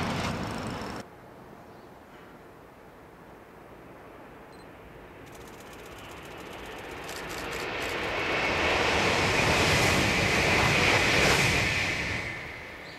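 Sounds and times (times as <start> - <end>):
high-speed train passing: 0.0 - 1.1, 3.9 - 12.9.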